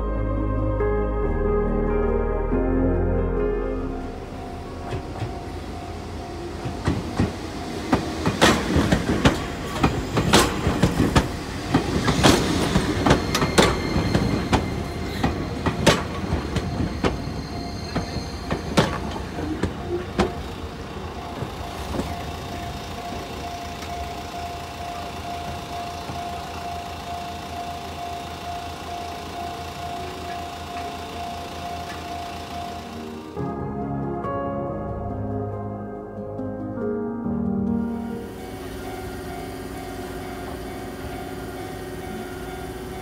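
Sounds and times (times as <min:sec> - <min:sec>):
level-crossing warning bell: 0:03.8 - 0:33.4, 0:38.0 - 0:43.0
train rumble: 0:03.9 - 0:33.4, 0:38.0 - 0:43.0
train wheels clacking on rails: 0:04.9 - 0:33.4.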